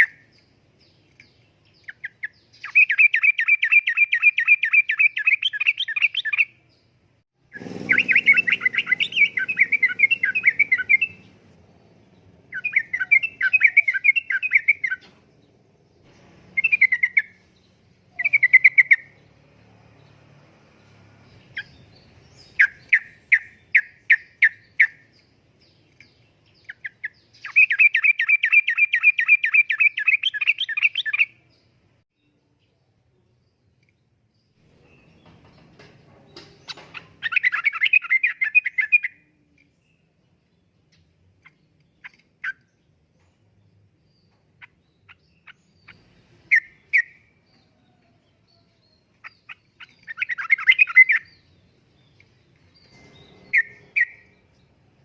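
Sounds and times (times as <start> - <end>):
bird singing bubbling notes: 7.5 - 11.3, 12.5 - 15.0.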